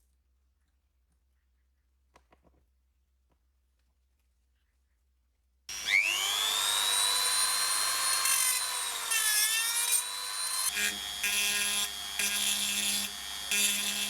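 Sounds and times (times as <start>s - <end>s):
electric tool motor whining: 5.7s - 14.0s.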